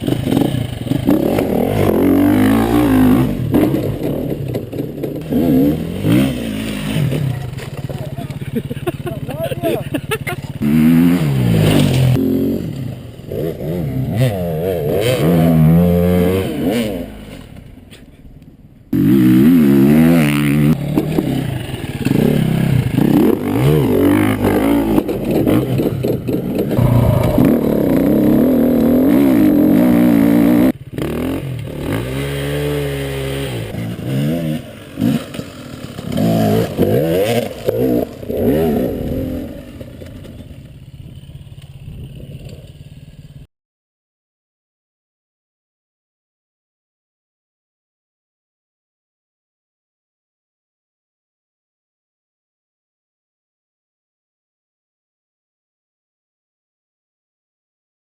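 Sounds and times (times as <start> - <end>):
dirt bike engines revving: 0.0 - 4.5, 5.1 - 17.6, 19.0 - 40.5.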